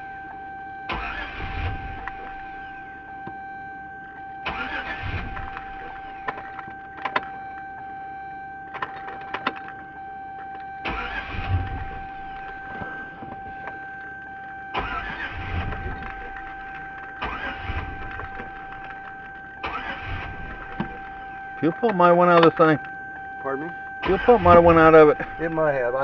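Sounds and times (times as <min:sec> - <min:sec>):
engine cranking on starter: 0:00.9 - 0:02.4, 0:04.4 - 0:06.4, 0:10.8 - 0:12.7, 0:14.7 - 0:21.3, 0:24.0 - 0:25.9
steady high tone: 0:10.9 - 0:26.0
sharp clicks: 0:13.6 - 0:23.3.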